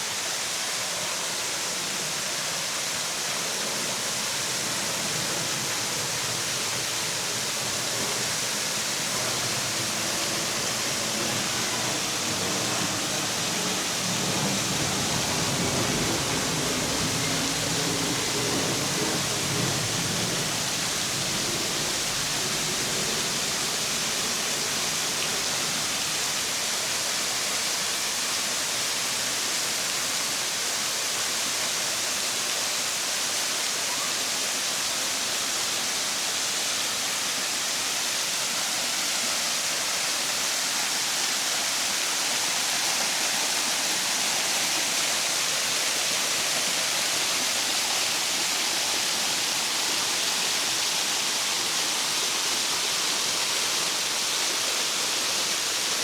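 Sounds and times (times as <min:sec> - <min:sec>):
waterfall rushing: 0:00.0 - 0:56.0
deep water rumble: 0:04.7 - 0:26.8.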